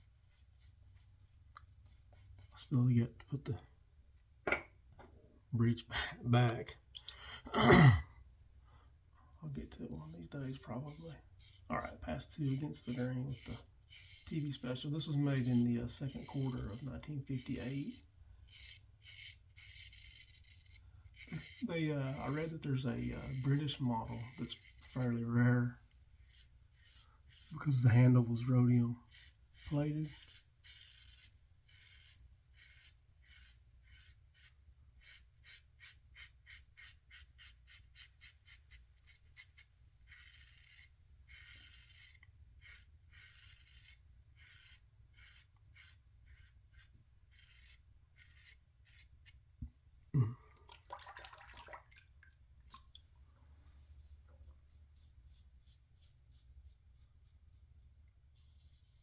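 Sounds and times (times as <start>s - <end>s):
razor scraping stubble: 9.5s - 49.5s.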